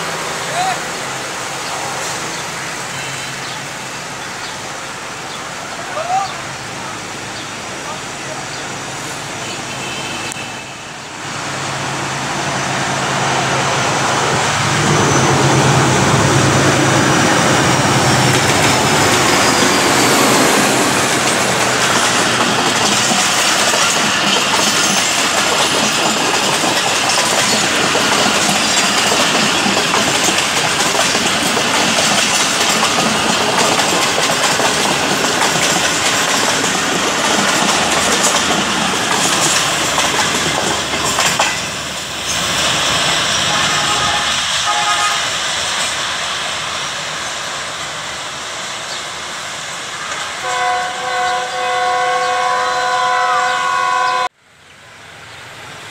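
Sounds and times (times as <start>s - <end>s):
diesel locomotive engine hum: 0.0s - 55.9s
wheels clattering over rail joints: 18.3s - 43.5s.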